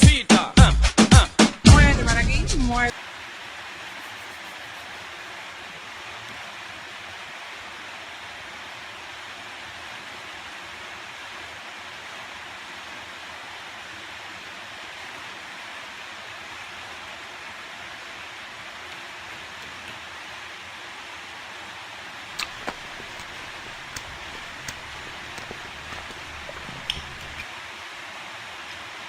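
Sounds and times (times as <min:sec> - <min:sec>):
steady hiss: 0:02.9 - 0:19.1, 0:20.0 - 0:28.5.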